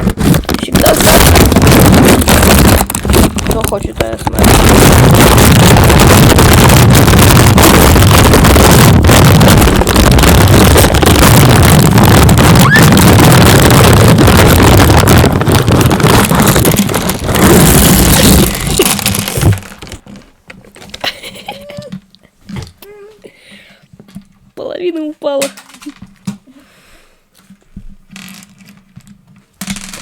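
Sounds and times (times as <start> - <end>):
distorted heavy rumble: 0.0 - 19.8.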